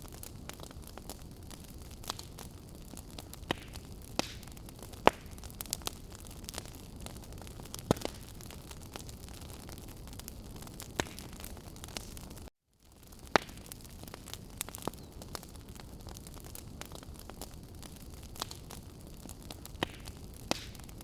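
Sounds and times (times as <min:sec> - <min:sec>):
firewood crackling and popping: 0:00.0 - 0:21.0
wood fire burning: 0:00.0 - 0:21.0.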